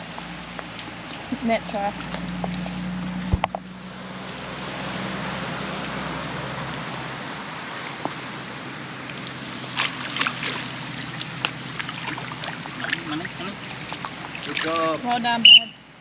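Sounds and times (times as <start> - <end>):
rain falling: 0.0 - 15.5
fish splashing in water: 3.7 - 15.6.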